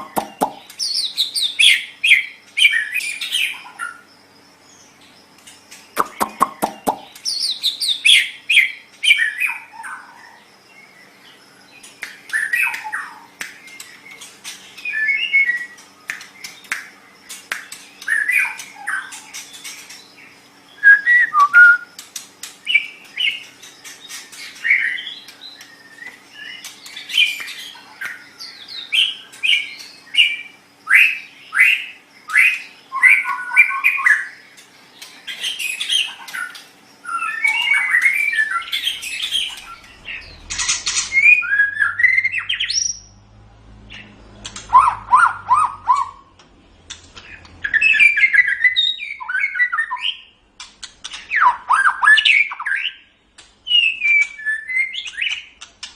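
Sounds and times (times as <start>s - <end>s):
bird clicking notes: 0.0s - 0.6s, 6.0s - 7.2s
bird singing whistled phrases: 20.7s - 22.0s, 37.0s - 40.5s, 41.1s - 43.1s, 47.6s - 50.3s, 53.7s - 55.5s
bird harsh squawk calls: 35.2s - 43.2s, 44.0s - 46.3s.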